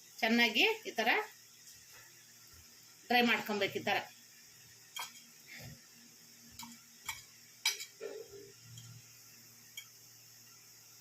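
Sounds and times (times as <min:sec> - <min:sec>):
dishes and utensils clicking: 0:05.0 - 0:05.3, 0:06.6 - 0:09.0.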